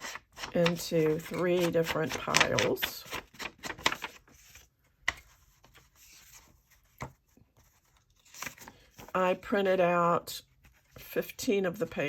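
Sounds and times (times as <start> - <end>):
paper rustling: 0.0 - 9.2.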